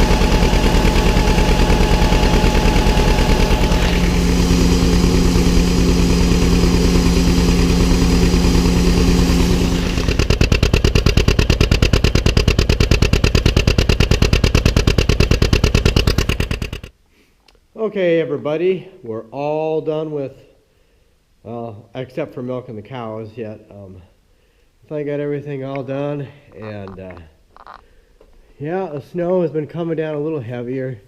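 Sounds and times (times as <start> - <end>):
steady whine: 0.0 - 16.9
tractor engine pulsing: 0.0 - 16.9, 25.7 - 27.8.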